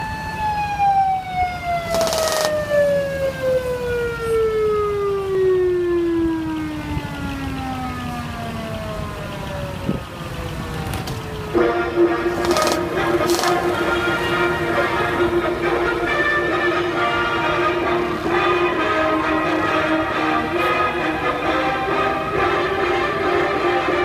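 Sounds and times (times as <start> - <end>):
siren winding down: 0.0 - 15.2.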